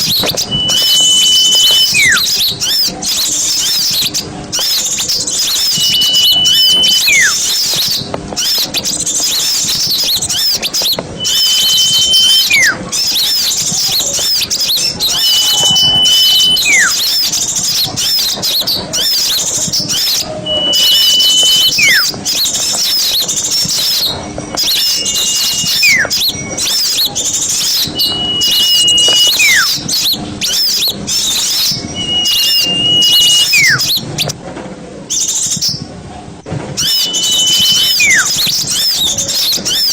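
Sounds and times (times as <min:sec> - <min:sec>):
downward sliding whistle: 0:00.0 - 0:02.4, 0:05.4 - 0:07.8, 0:11.2 - 0:13.5, 0:14.7 - 0:17.4, 0:19.9 - 0:34.3, 0:36.8 - 0:39.9
songbirds chattering: 0:00.0 - 0:34.4, 0:36.8 - 0:39.9.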